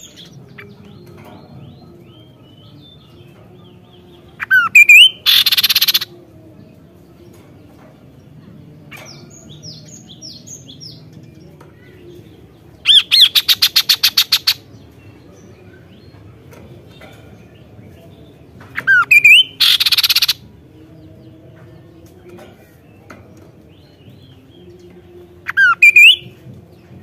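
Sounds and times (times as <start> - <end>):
bird calling: 4.4 - 6.1, 18.8 - 20.4, 25.5 - 26.3.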